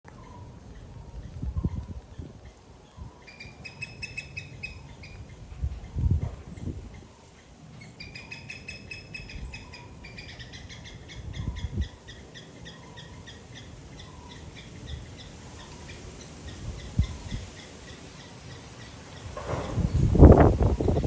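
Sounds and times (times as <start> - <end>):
bird whistling and calling: 3.2 - 5.2.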